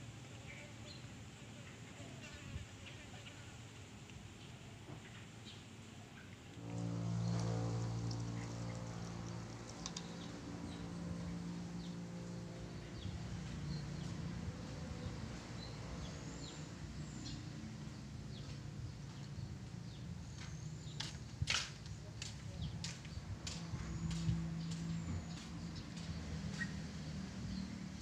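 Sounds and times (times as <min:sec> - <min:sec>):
steady low hum: 0:06.3 - 0:26.3.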